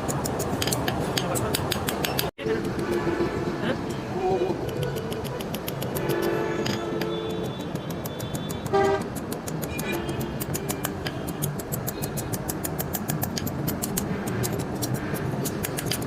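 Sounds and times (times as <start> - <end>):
rapid metalwork strokes: 0.0 - 3.4, 4.6 - 16.0
street noise: 0.0 - 16.0
vehicle horn toot: 6.0 - 9.0.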